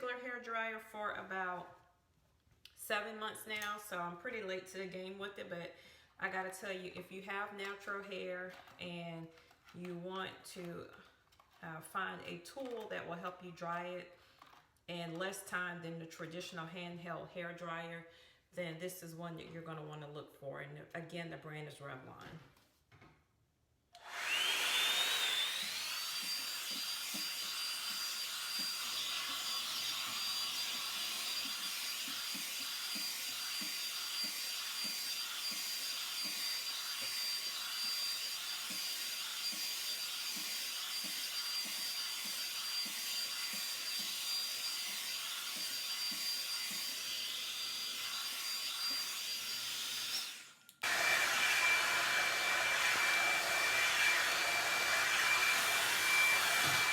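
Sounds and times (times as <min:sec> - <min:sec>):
hair dryer brush whining: 0:24.0 - 0:56.9.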